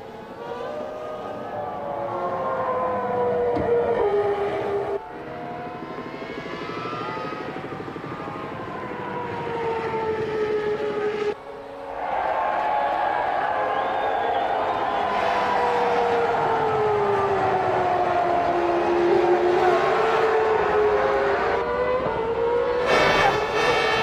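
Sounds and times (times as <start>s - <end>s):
racing car engines at high revs: 15.0s - 24.0s.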